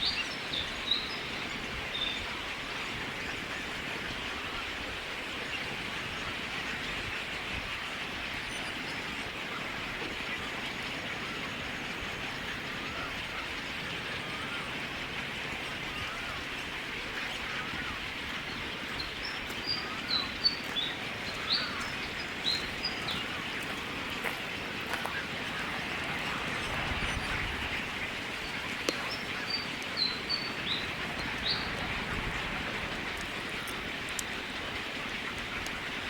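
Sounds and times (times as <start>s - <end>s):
steady outdoor hiss: 0.0s - 36.0s
bird chirping: 18.4s - 34.6s.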